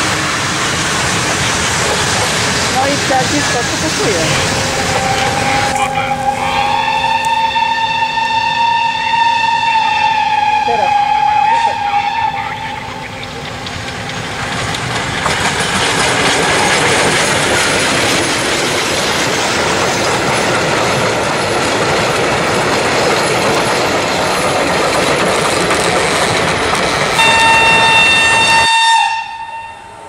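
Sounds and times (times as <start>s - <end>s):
train wheels clattering on rails: 0.0s - 6.0s, 12.6s - 29.3s.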